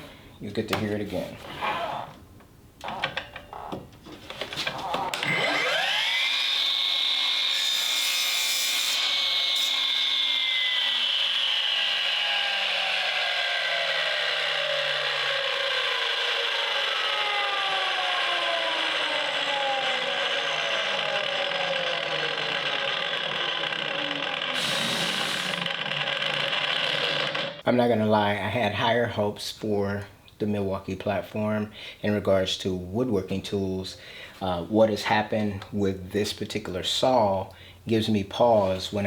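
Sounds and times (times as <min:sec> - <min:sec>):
miter saw whining: 0:04.6 - 0:27.6.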